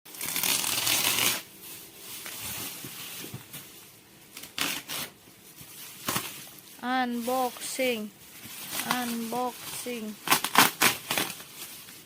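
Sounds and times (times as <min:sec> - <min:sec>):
packaging rasping: 0:00.1 - 0:01.4
packaging rustling: 0:00.1 - 0:01.4.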